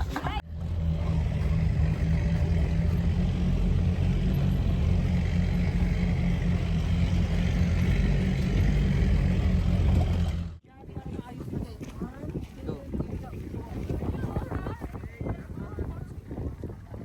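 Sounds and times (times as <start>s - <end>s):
vehicle engine running: 0.3s - 10.6s.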